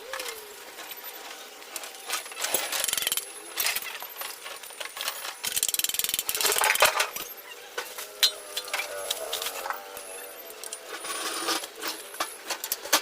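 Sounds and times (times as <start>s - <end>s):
ratchet spanner clicking: 2.7s - 3.2s, 5.4s - 6.6s.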